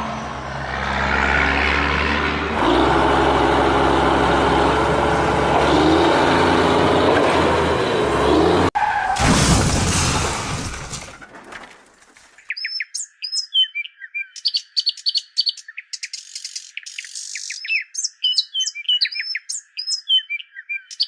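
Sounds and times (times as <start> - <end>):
heavy vehicle engine running: 0.0 - 8.8.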